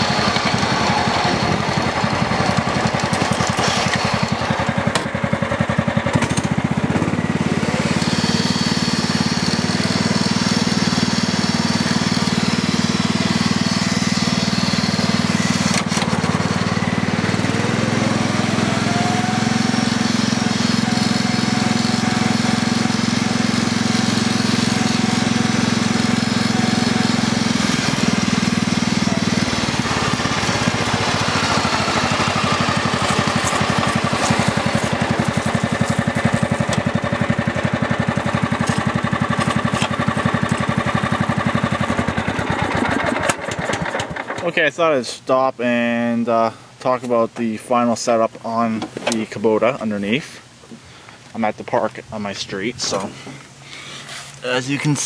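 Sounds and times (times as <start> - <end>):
lawn tractor engine running: 0.0 - 45.0, 45.7 - 55.0
rising whine: 6.9 - 42.8.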